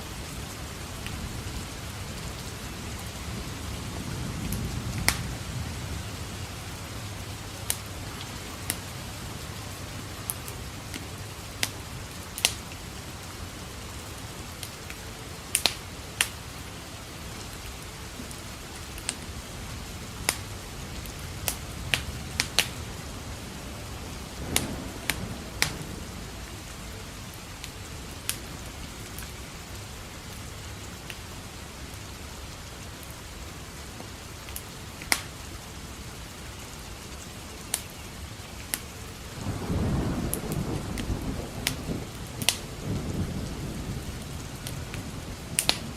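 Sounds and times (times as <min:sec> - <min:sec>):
steady rain: 0:00.0 - 0:45.9
thunder rumble: 0:00.3 - 0:13.3, 0:19.3 - 0:29.2, 0:39.3 - 0:45.9
wood fire crackling and popping: 0:04.4 - 0:05.4, 0:07.5 - 0:12.8, 0:14.5 - 0:16.4, 0:18.3 - 0:19.3, 0:20.2 - 0:22.9, 0:24.3 - 0:26.2, 0:34.5 - 0:35.4, 0:37.7 - 0:38.0, 0:40.2 - 0:42.9, 0:43.5 - 0:45.9.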